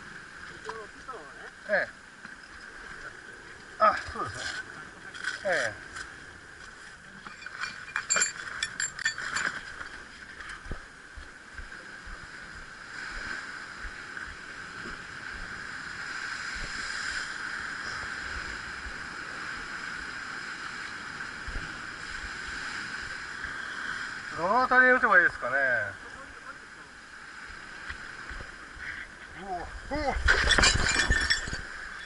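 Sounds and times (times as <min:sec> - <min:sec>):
sharp metallic clinks and knocks: 0:07.2 - 0:10.0, 0:30.3 - 0:32.0.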